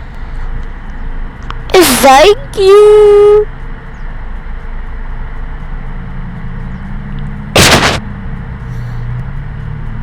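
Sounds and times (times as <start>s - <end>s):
sudden loud burst of noise: 7.6s - 8.0s.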